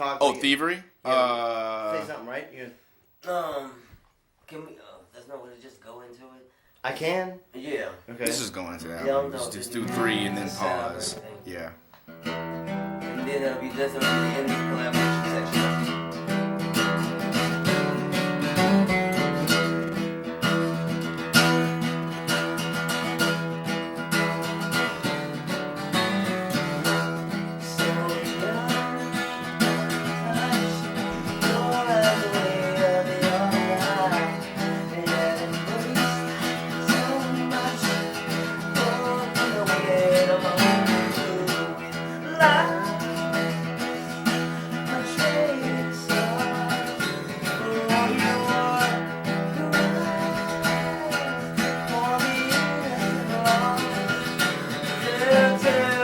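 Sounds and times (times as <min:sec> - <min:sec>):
acoustic guitar: 0:00.0 - 0:56.0
person singing: 0:09.0 - 0:11.5, 0:13.0 - 0:20.0, 0:25.9 - 0:56.0.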